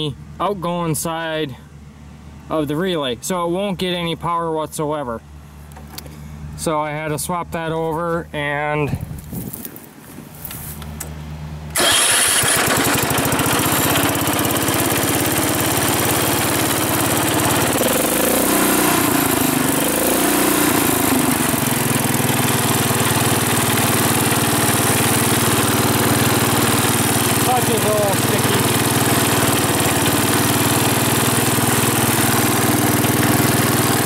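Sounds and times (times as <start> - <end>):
tractor engine running: 5.5 - 34.0
electric starter cranking: 11.7 - 34.0.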